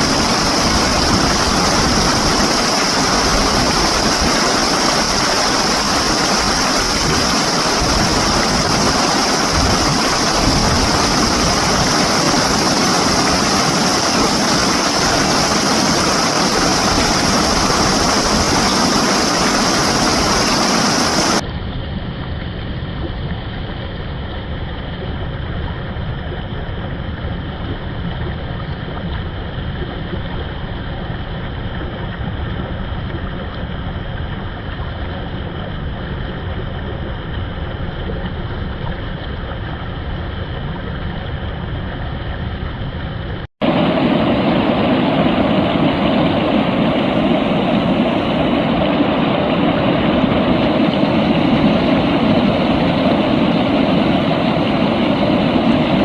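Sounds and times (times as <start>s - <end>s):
reversed flowing water rushing: 0.0s - 21.4s, 43.1s - 56.0s.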